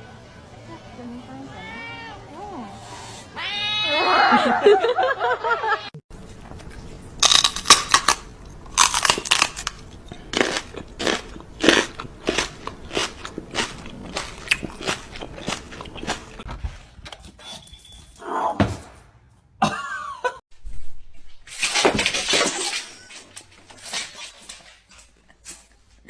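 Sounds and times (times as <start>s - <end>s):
loud crunching: 6.2s - 16.5s.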